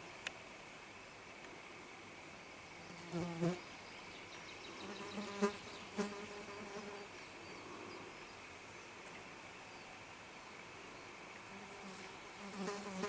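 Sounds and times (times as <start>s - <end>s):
flying insect buzzing: 2.8s - 3.6s, 4.8s - 7.1s, 11.4s - 13.0s.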